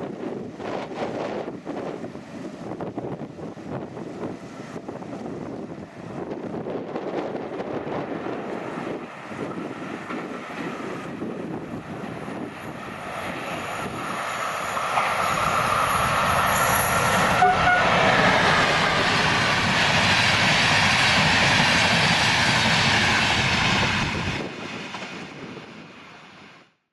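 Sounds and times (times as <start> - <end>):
train wheels running over rails: 0.0 - 25.4
train horn toot: 16.5 - 18.6.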